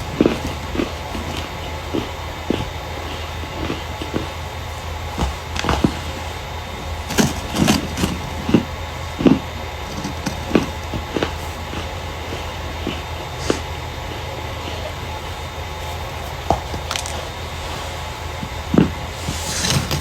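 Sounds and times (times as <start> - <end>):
starch crunching: 0.0 - 20.0
steady low hum: 0.0 - 20.0.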